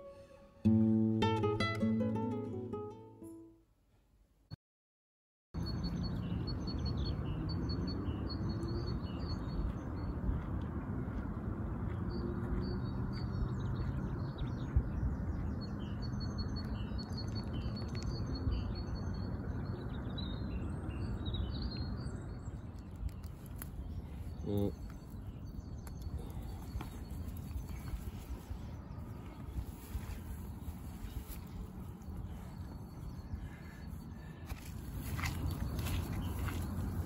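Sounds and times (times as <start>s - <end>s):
small birds chirping and singing: 11.9s - 37.0s.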